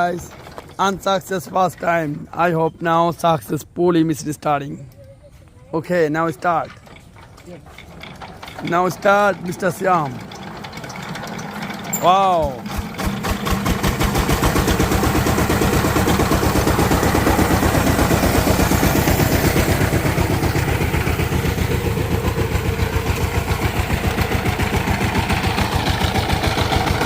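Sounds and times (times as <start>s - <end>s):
diesel engine running: 6.2s - 27.0s.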